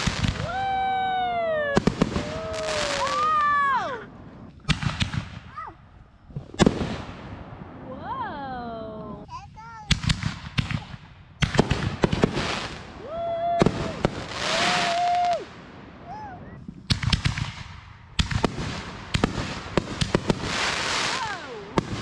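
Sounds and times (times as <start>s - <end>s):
firework whistles: 0.0s - 3.9s, 11.5s - 22.0s
firework bangs: 0.0s - 7.9s, 9.6s - 22.0s
firework crackling: 0.0s - 22.0s.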